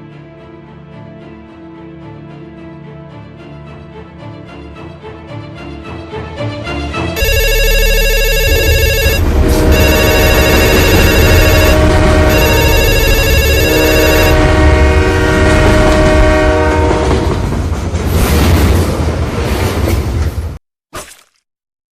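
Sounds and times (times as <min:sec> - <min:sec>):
trilling bell-like ring: 0:07.2 - 0:14.3.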